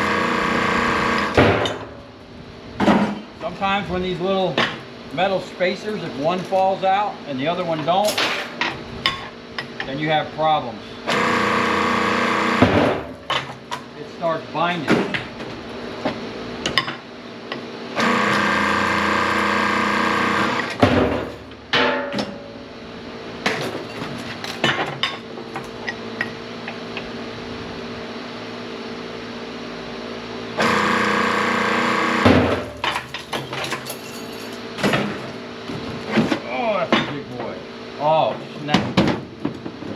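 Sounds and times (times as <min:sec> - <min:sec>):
hydraulic pump whine: 0:00.0 - 0:02.2, 0:11.0 - 0:13.4, 0:17.9 - 0:21.6, 0:30.5 - 0:33.6.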